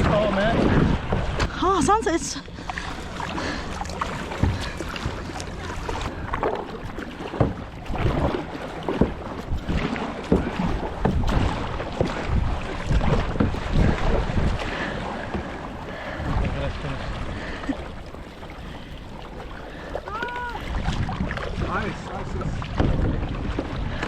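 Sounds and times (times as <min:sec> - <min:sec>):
paddle strokes splashing water: 0:00.0 - 0:24.0
wind buffeting microphone: 0:00.0 - 0:24.0.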